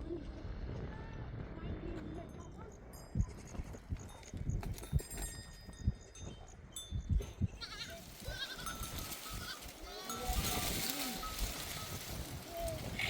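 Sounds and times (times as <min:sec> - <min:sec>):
livestock bells tinkling: 0:02.2 - 0:13.0
goats bleating: 0:07.6 - 0:13.0.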